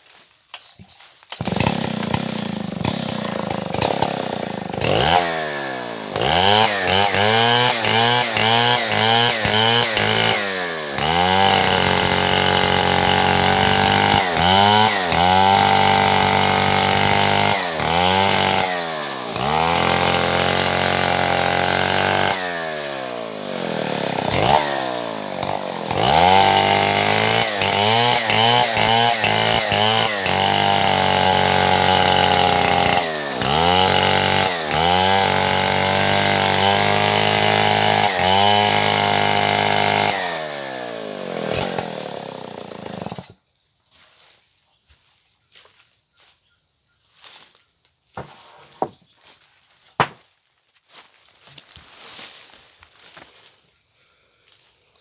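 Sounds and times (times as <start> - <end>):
chainsaw cutting wood: 1.3 - 43.4, 48.2 - 49.1, 50.0 - 50.2.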